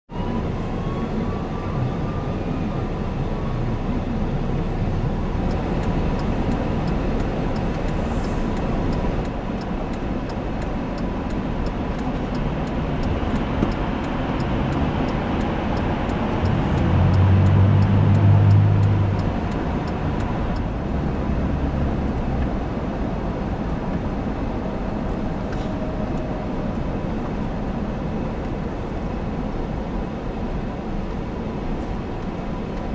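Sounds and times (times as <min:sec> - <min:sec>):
heavy engine drone: 0:00.1 - 0:32.9
highway traffic rumble: 0:00.1 - 0:32.9.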